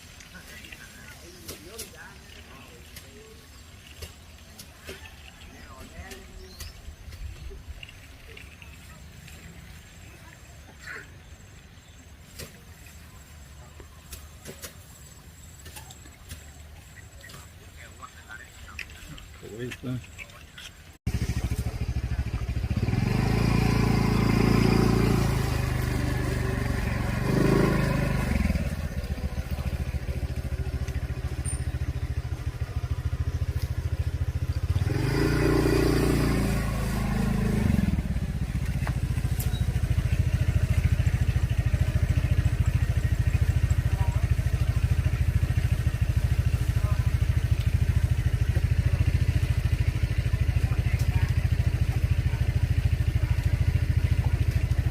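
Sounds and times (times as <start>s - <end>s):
small engine running: 20.8s - 54.9s.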